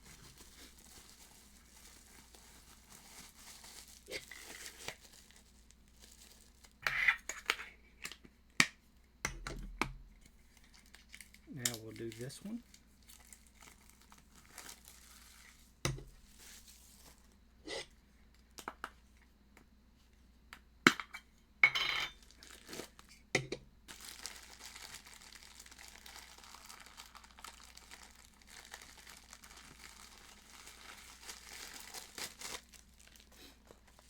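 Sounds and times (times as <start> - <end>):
packaging rustle: 0.0 - 6.8, 10.5 - 17.3, 22.2 - 23.1, 23.9 - 34.0
faint packaging crinkling: 0.0 - 8.2, 10.2 - 17.4, 22.2 - 23.2, 23.9 - 34.0.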